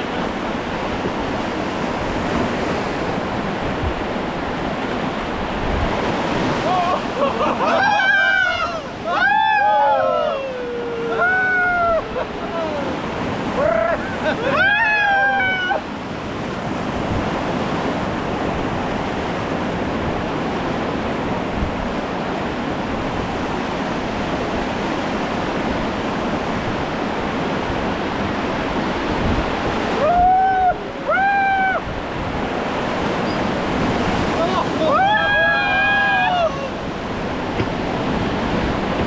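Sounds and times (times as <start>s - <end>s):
river rapids rushing: 0.0s - 39.0s
wind on microphone: 0.0s - 39.0s
person shouting: 6.6s - 7.0s, 7.7s - 13.0s, 13.6s - 15.8s, 34.4s - 36.8s.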